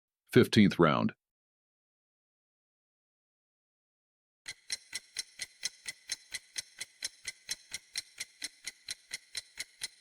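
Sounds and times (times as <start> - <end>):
clock ticking: 4.5 - 10.0.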